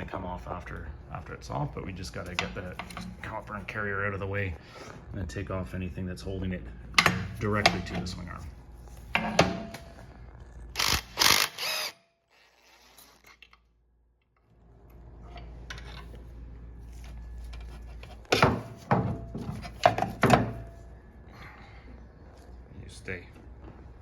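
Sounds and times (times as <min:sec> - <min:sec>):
low steady hum: 0:00.0 - 0:11.9, 0:13.5 - 0:24.0.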